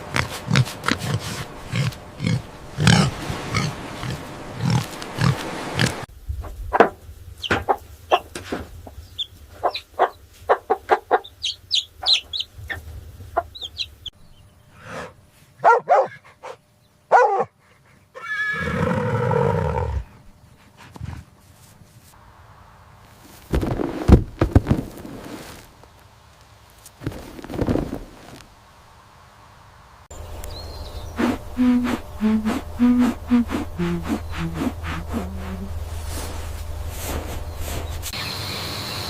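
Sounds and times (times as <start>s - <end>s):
low grunting calls: 0.0s - 6.1s, 31.1s - 36.0s
long pitched animal call: 31.2s - 35.9s.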